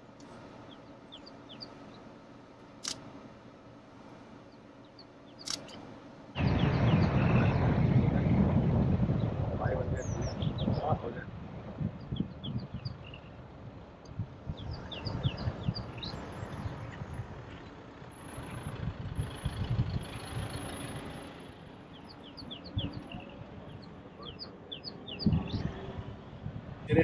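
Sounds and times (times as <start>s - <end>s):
wind rumbling on microphone: 6.4s - 27.0s
vehicle passing: 13.4s - 27.0s.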